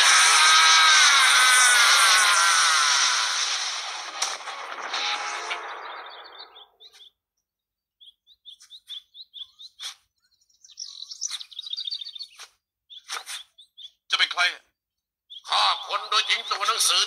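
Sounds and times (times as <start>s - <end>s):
loud noisy burst: 0.0s - 6.6s
small birds chirping: 5.6s - 17.0s.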